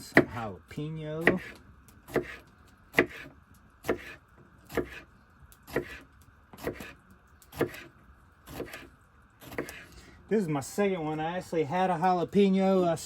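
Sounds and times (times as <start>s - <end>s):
knife chopping on board: 1.2s - 5.0s, 5.7s - 6.0s, 6.6s - 6.9s, 7.5s - 7.9s, 8.5s - 8.8s, 9.4s - 9.8s.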